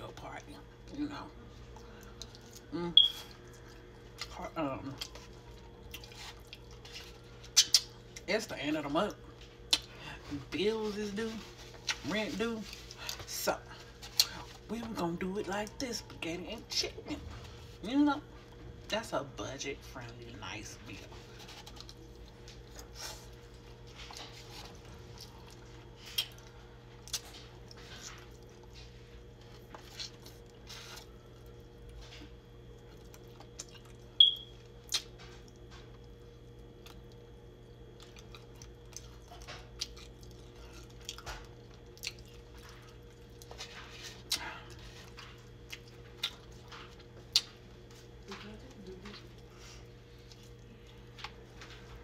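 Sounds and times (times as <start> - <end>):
chewing and wet mouth clicks: 1.8 - 4.3, 5.0 - 8.3, 9.7 - 9.9, 25.2 - 28.6, 32.9 - 37.2, 38.0 - 43.6, 45.1 - 48.0.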